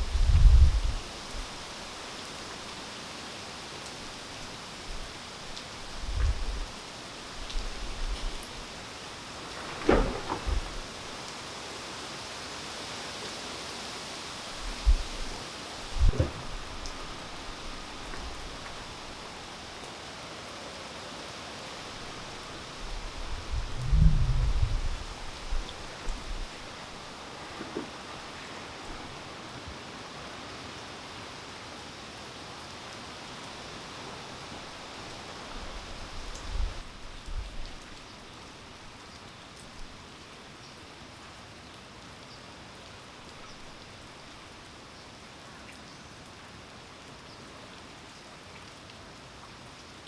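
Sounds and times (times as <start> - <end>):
faint drip-like tick: 0.0 - 8.8, 14.4 - 50.0
steady rain falling: 0.0 - 50.0
low thumps: 9.4 - 11.2, 15.9 - 18.8
low thud: 9.5 - 11.2, 15.9 - 17.2.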